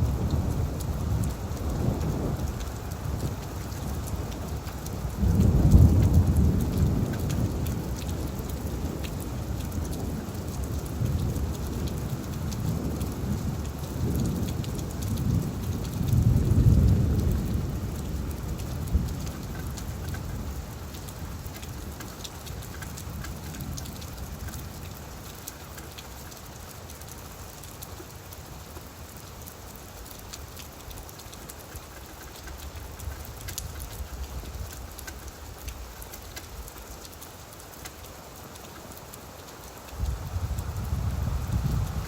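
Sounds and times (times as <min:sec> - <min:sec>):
distant thunder rumbling: 0:00.0 - 0:21.5
rain falling on leaves: 0:00.0 - 0:42.0.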